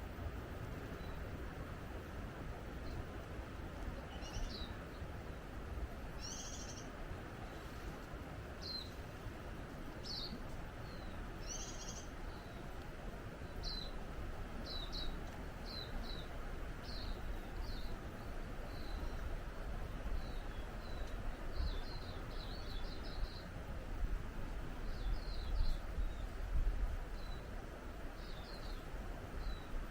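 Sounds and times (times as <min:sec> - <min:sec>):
small birds chirping: 0:03.8 - 0:05.2, 0:06.1 - 0:09.2, 0:09.9 - 0:23.6, 0:24.7 - 0:29.8.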